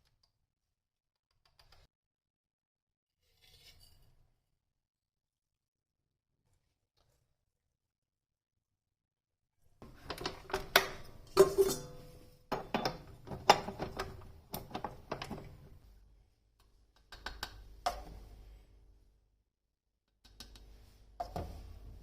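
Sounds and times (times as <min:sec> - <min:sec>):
kitchen items clinking and knocking: 0:09.8 - 0:15.6.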